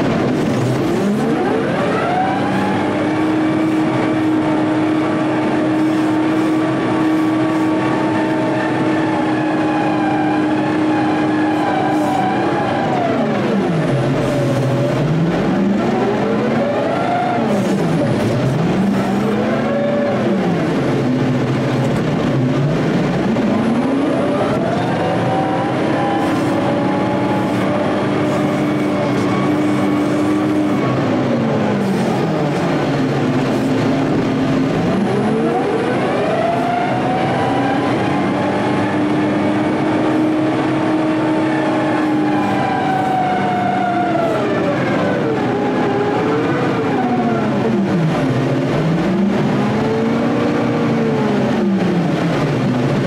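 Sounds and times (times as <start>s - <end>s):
diesel engine revving under load: 0.0s - 53.0s.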